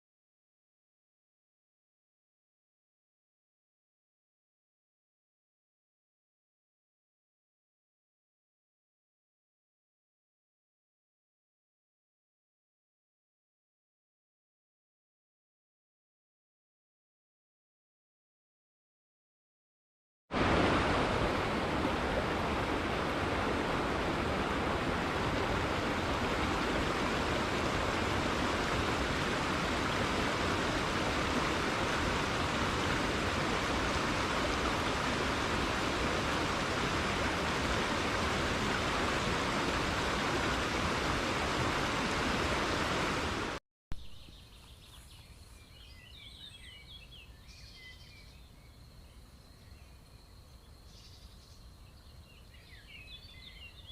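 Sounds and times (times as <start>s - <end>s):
flowing water rushing: 20.3s - 43.6s
faint bird chirps: 44.0s - 53.9s.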